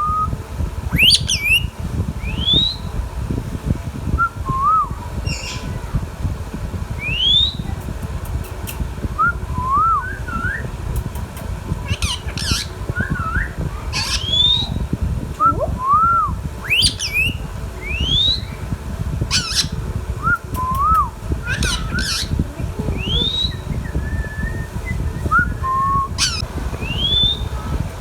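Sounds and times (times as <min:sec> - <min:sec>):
parakeet whistling: 0:00.0 - 0:02.9, 0:04.2 - 0:05.8, 0:07.0 - 0:07.7, 0:09.2 - 0:10.7, 0:11.8 - 0:18.6, 0:19.3 - 0:27.8
steady low rumble: 0:00.0 - 0:28.0
parakeet harsh squawks: 0:11.8 - 0:14.8, 0:16.7 - 0:17.4, 0:19.3 - 0:19.8, 0:21.5 - 0:22.4, 0:26.2 - 0:26.4.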